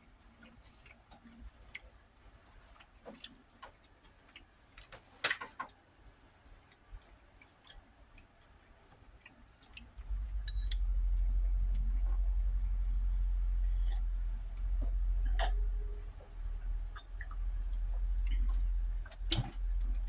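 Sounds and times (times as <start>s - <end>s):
low rumbling: 9.9s - 20.0s.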